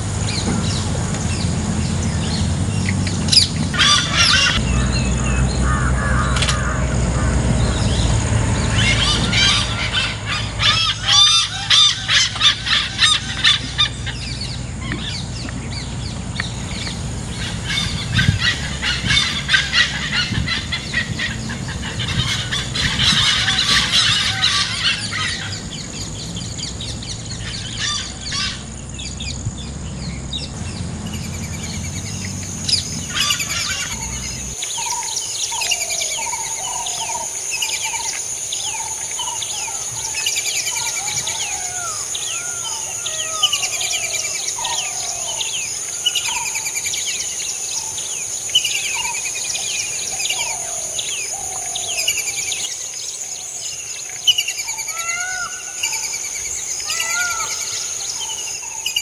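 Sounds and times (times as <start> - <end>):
low rumble: 0.0 - 34.6
steady high-pitched whine: 0.0 - 54.9.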